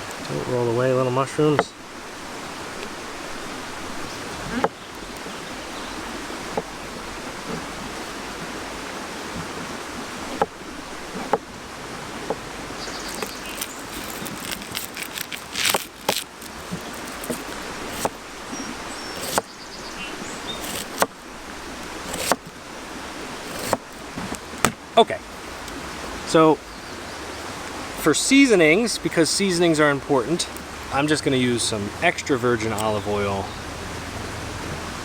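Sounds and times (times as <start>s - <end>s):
campfire burning: 1.8s - 26.3s.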